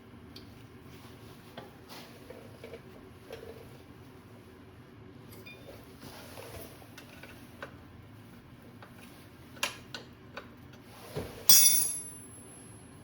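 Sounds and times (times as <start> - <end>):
metal tools clicking and tapping: 11.5 - 12.5
loud metallic clank with ring: 11.5 - 12.6.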